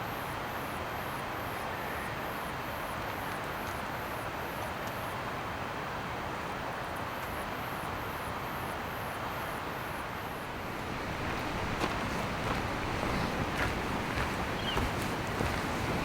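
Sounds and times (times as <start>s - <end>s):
outdoor rushing noise: 10.2s - 16.0s
faint high chirps: 14.5s - 15.0s.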